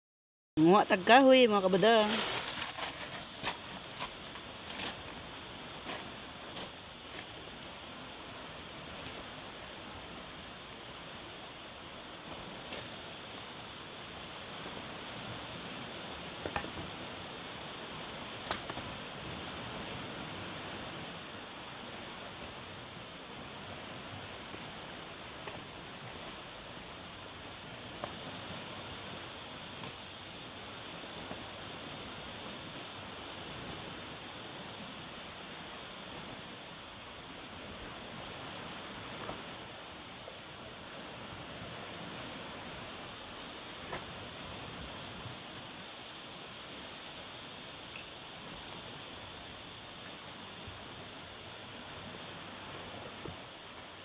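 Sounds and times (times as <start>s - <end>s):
wind: 0.6s - 54.0s.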